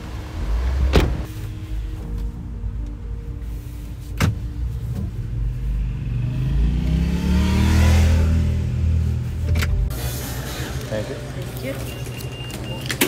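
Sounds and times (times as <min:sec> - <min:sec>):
engine accelerating: 0:04.6 - 0:10.5.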